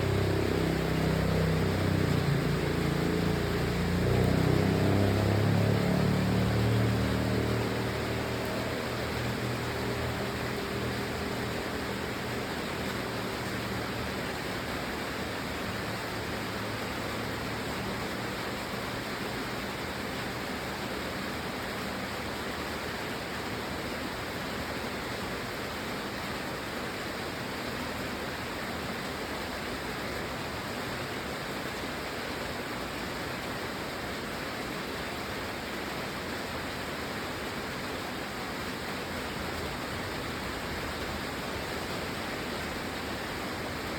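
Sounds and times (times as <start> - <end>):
steady rain hiss: 0.0 - 43.9.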